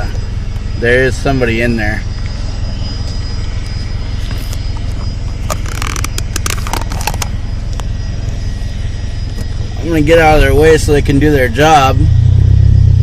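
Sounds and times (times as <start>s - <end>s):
turbine aircraft engine running: 0.0s - 13.0s
sharp clicks and knocks: 4.9s - 7.3s.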